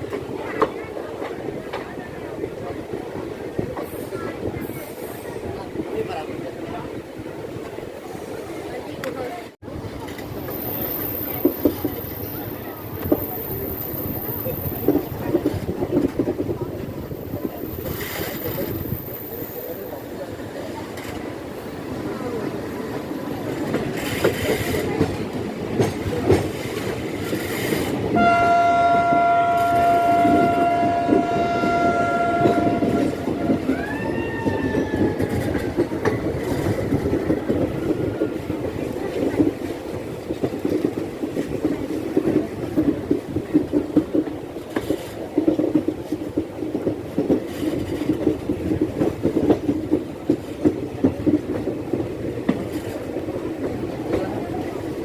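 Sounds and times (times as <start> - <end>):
train rumble: 0.0 - 55.0
train wheels clacking: 22.8 - 55.0
train horn blast: 28.1 - 34.8
sliding horn tone: 28.2 - 33.8.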